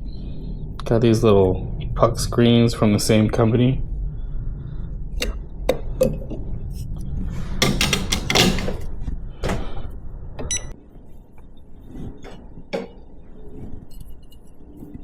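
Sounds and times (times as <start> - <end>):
low hum: 0.0 - 15.0
espresso gear clicks and knocks: 7.6 - 8.8.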